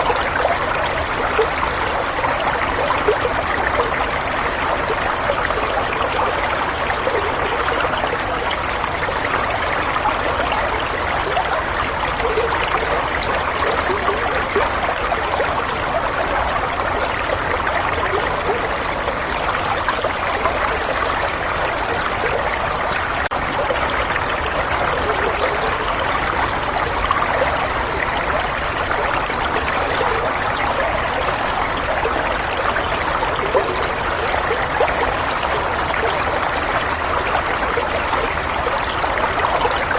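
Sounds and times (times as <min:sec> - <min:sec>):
stream trickling and bubbling: 0:00.0 - 0:39.9.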